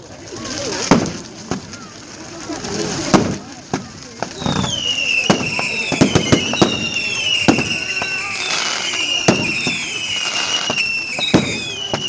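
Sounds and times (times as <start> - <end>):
firework bangs and crackles: 0.0 - 12.0
firework whistles gliding down: 4.2 - 12.0.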